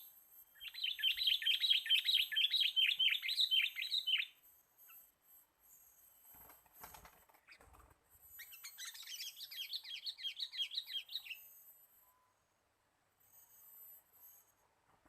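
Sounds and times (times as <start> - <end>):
bird chattering trill: 0.6 - 4.3, 8.4 - 11.4.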